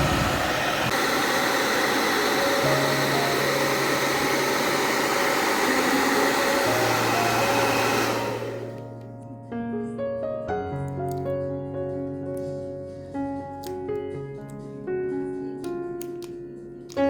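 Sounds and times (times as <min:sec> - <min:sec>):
hair dryer blowing: 0:00.0 - 0:09.0
piano music: 0:00.0 - 0:17.0.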